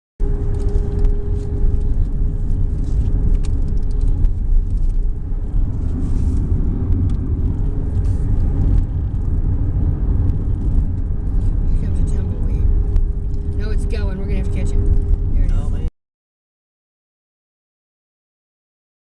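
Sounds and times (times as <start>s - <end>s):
vehicle road rumble: 0.2s - 15.9s.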